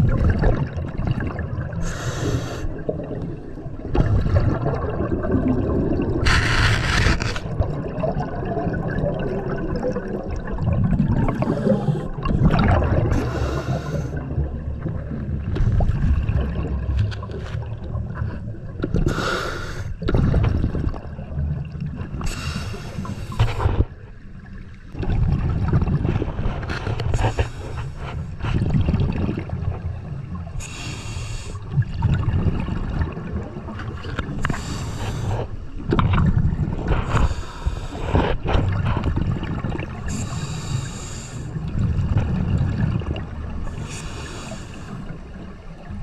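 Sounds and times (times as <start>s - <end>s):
exhaled bubbles rushing: 0.0s - 19.1s, 20.0s - 22.3s, 23.0s - 30.7s, 31.4s - 40.3s, 41.5s - 44.0s
low underwater rumble: 0.0s - 19.2s, 19.9s - 46.0s.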